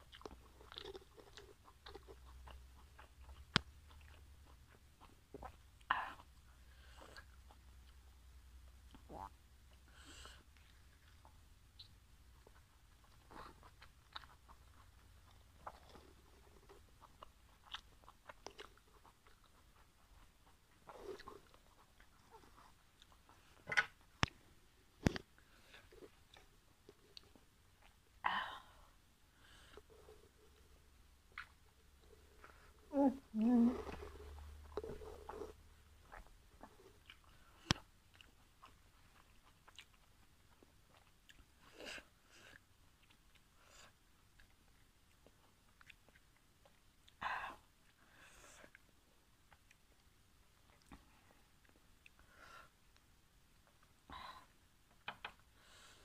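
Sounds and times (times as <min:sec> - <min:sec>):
wet chewing mouth clicks: 0:00.0 - 0:08.0
soft chewing: 0:00.0 - 0:56.0.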